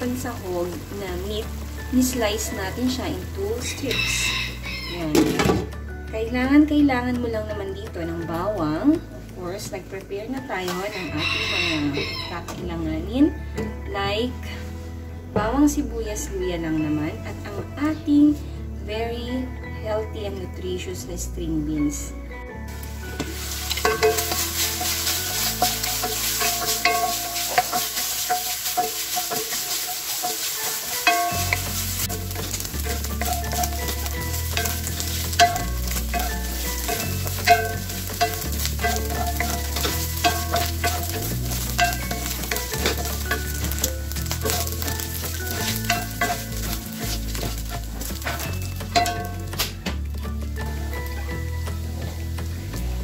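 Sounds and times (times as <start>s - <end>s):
meat sizzling in a wok: 0.0s - 6.1s, 10.7s - 12.4s, 22.7s - 53.0s
wooden spoon scraping metal: 22.7s - 49.6s.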